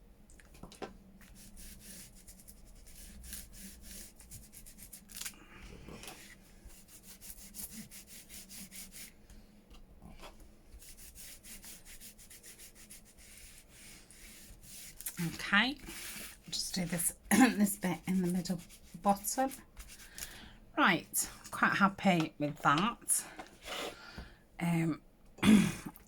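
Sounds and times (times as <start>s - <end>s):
scratching on paper: 1.2s - 9.1s, 10.1s - 20.2s.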